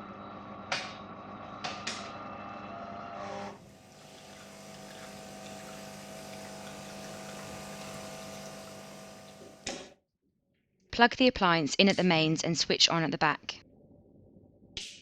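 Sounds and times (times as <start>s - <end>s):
coffee machine pump hum: 0.0s - 9.8s
hot water flowing: 3.2s - 9.7s.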